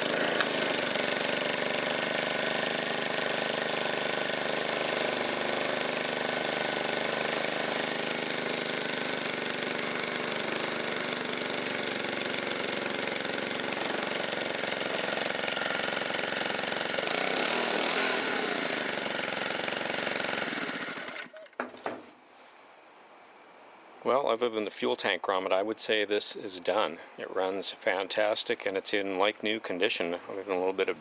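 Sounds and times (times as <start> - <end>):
leaf blower engine running: 0.0 - 21.4.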